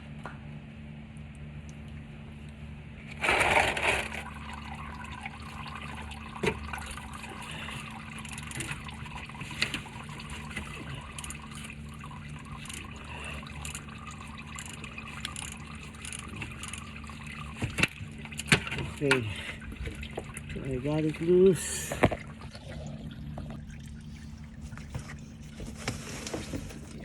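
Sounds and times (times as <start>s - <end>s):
steady low hum: 0.0s - 27.0s
oil gushing and splashing: 3.0s - 27.0s
oil trickling into drain pan: 3.2s - 21.5s.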